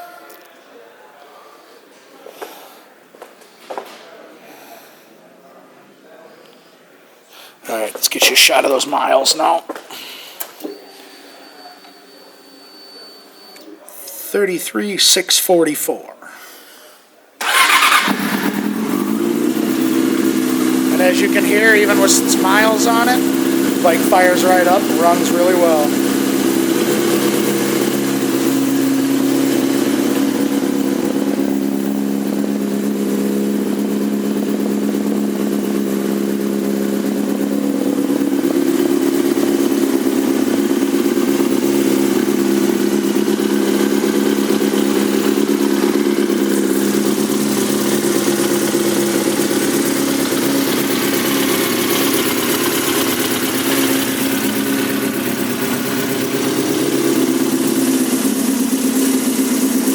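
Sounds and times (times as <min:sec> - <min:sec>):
motorcycle engine idling: 0:17.4 - 0:59.9.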